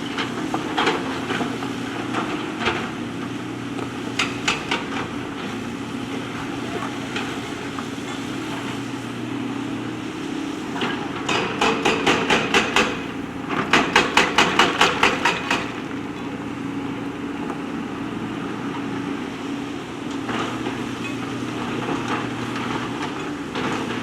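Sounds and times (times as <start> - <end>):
diesel engine running: 0.0 - 24.0
rapid machine knocks: 11.3 - 15.8.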